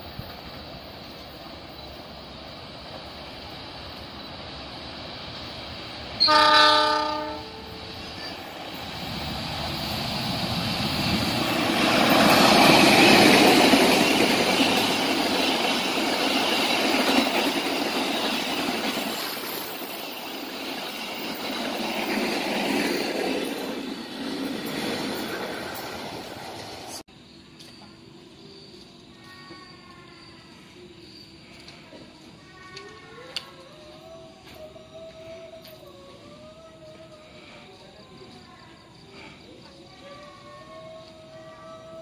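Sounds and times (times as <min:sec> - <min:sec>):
train wheels rushing past: 0:00.0 - 0:27.0
train horn blast: 0:06.2 - 0:07.9.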